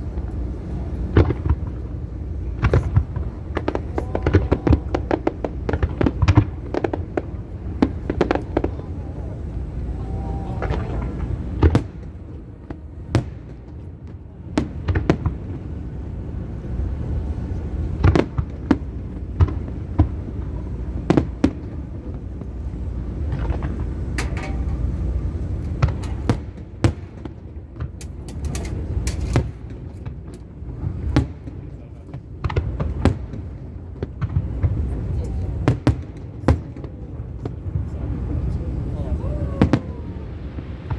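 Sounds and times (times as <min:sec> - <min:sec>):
low rumble: 0:00.0 - 0:13.4, 0:19.0 - 0:26.8
fireworks bangs: 0:00.0 - 0:40.9.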